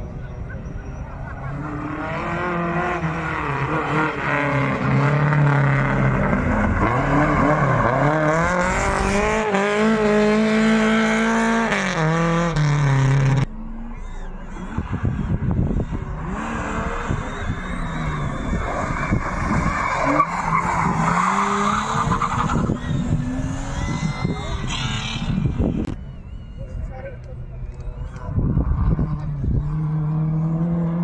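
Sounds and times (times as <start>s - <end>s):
distant engine revving: 0.6s - 31.0s
car engine revving hard: 1.5s - 25.9s
tyre squeal: 13.6s - 30.0s.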